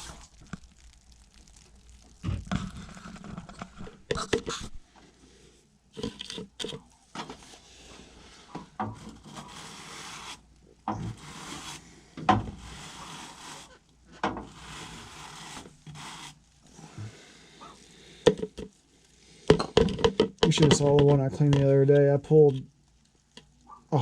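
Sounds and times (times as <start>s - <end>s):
long rubbing strokes: 2.4s - 18.1s.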